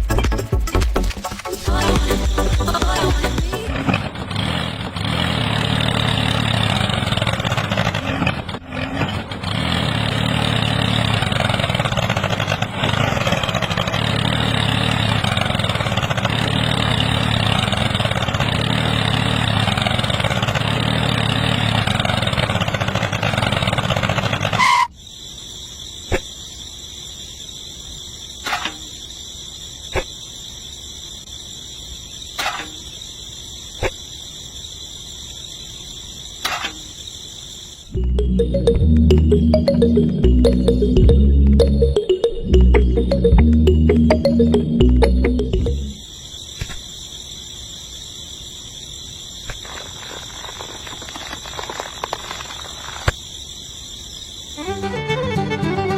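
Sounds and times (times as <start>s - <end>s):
high insect chirring: 24.6s - 38.7s, 39.3s - 55.9s.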